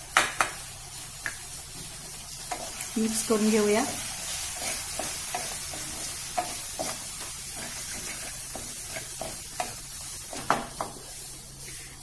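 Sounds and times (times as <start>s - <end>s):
masala sizzling in oil: 0.0s - 12.0s
spatula scraping and knocking pan: 4.3s - 11.1s.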